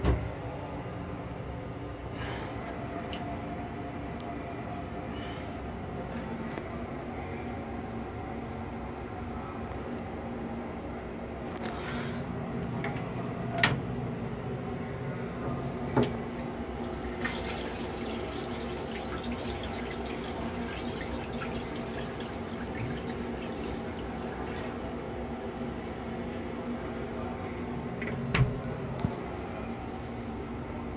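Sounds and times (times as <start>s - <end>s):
steady hum: 11.8s - 30.9s
faucet running water: 16.1s - 26.6s.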